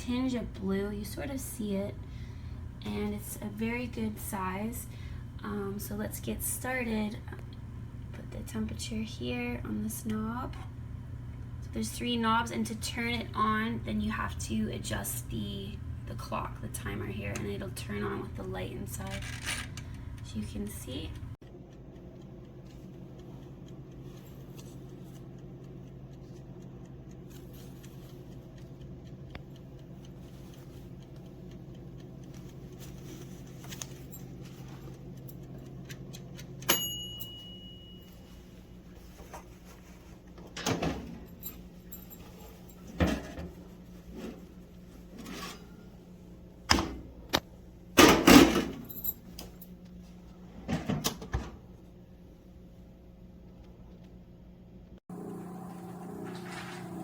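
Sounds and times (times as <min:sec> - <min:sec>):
toaster oven humming: 0:00.0 - 0:57.0
timer bell ding: 0:36.7 - 0:38.4.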